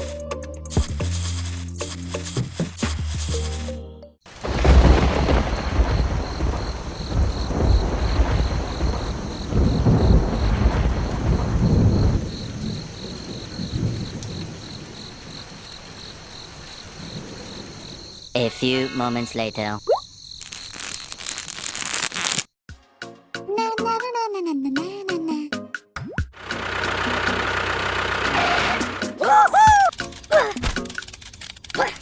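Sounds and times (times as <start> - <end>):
rain hissing: 0.0 - 18.8, 20.3 - 22.5, 26.4 - 31.8
thunder rumbling: 4.3 - 18.3.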